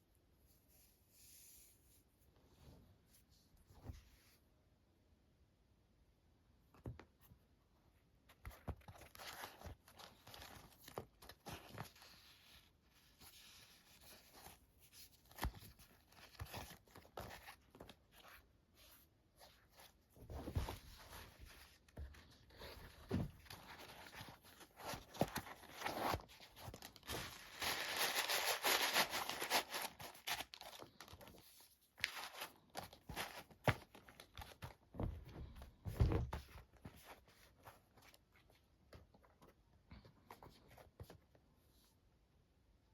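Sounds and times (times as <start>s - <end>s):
packaging crinkling and rustling: 22.9s - 31.4s, 32.0s - 34.8s.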